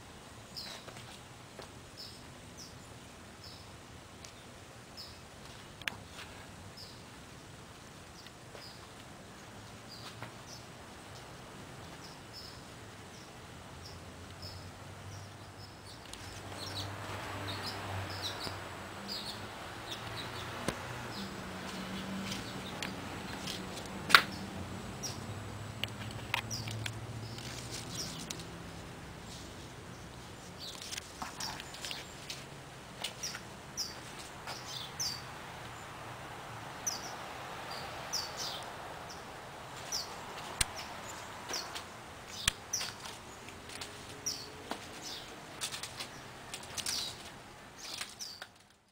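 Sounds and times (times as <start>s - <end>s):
soft outdoor background noise: 0.0s - 48.9s
small bird chirping: 26.0s - 28.4s.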